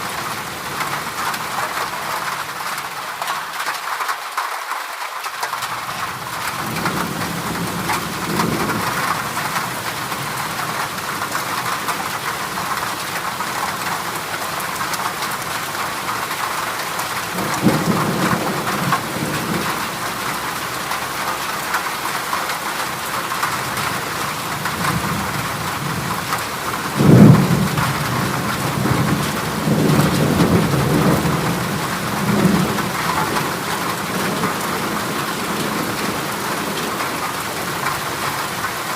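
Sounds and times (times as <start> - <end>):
heavy rain on a metal roof: 0.0 - 38.9
thunder rumbling: 17.3 - 20.5, 24.6 - 37.8
thunder clap: 24.6 - 37.1.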